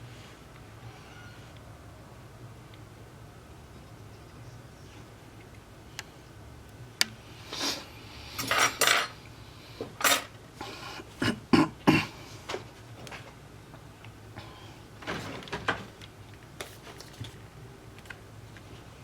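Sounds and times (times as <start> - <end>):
metal tools clinking and scraping: 8.4 - 9.2, 10.0 - 10.4.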